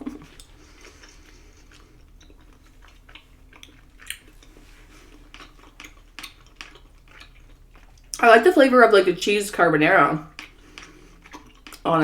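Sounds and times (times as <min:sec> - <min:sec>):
person chewing: 0:00.0 - 0:08.2, 0:10.2 - 0:11.9
mouth clicks and smacks: 0:05.2 - 0:08.2.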